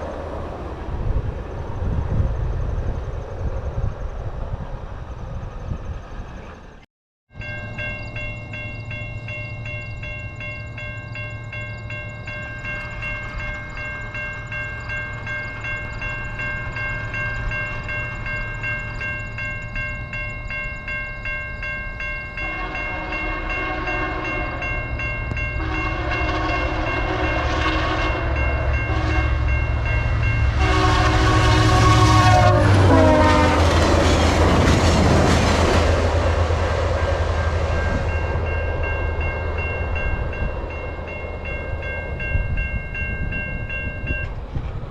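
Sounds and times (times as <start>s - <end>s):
locomotive engine drone: 0.0s - 6.8s, 7.4s - 44.9s
train rushing past: 0.0s - 6.8s, 7.8s - 44.9s
crossing warning bell: 7.3s - 44.9s
train horn blasts: 22.4s - 34.6s.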